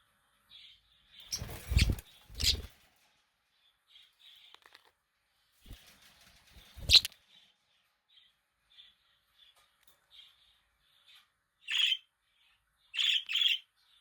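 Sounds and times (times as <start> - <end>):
budgerigars chirping: 1.2 - 2.7, 11.7 - 12.1, 13.0 - 13.7
wing flapping: 1.3 - 2.8.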